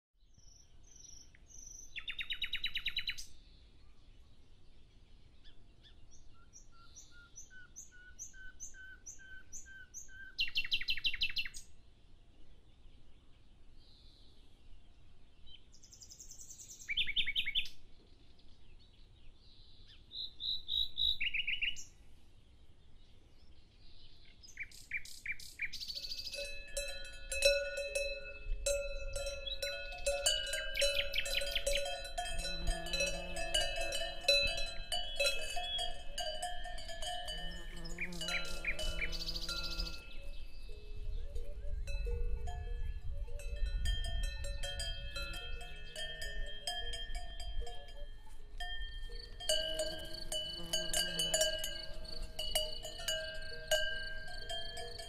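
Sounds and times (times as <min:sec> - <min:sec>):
birds singing: 0:00.3 - 0:11.7, 0:12.7 - 0:22.0, 0:22.7 - 0:27.0, 0:29.2 - 0:55.0.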